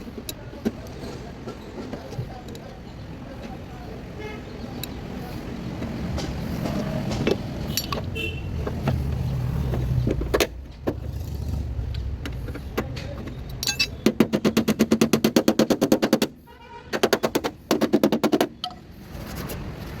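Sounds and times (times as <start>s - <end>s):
tool hammering rapidly: 13.9s - 18.6s.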